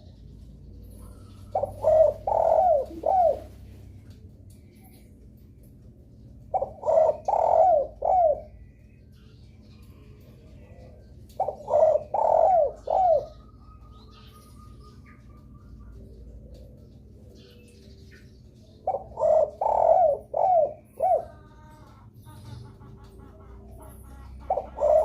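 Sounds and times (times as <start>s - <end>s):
dove cooing: 0.0s - 4.2s, 6.4s - 9.0s, 9.8s - 25.0s
faint bird chirps: 0.0s - 5.3s.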